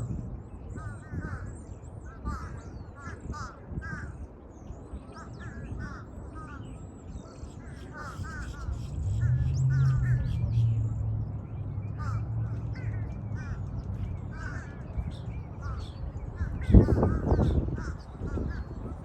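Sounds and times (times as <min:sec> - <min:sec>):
crows cawing: 0:02.1 - 0:04.2, 0:05.2 - 0:06.7, 0:11.9 - 0:18.9
low steady hum: 0:08.0 - 0:16.5.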